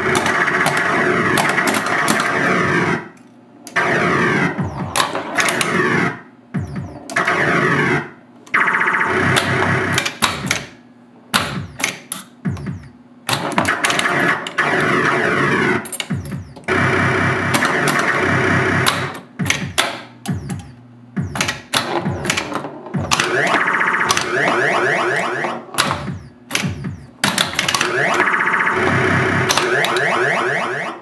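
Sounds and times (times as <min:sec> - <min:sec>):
pinball electronic sound effects: 0:00.0 - 0:10.8, 0:11.4 - 0:31.0
pinball playfield clicks and knocks: 0:00.1 - 0:02.4, 0:04.6 - 0:05.8, 0:09.3 - 0:14.9, 0:15.8 - 0:16.7, 0:17.5 - 0:18.2, 0:18.8 - 0:30.2.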